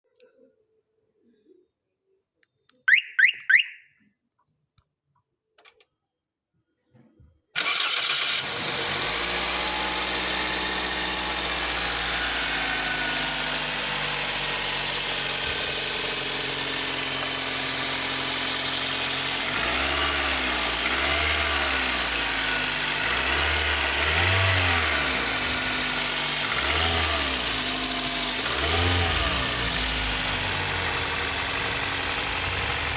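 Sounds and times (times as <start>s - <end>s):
car engine starting and idling: 7.6s - 32.9s
engine revving in short blips: 7.6s - 32.9s.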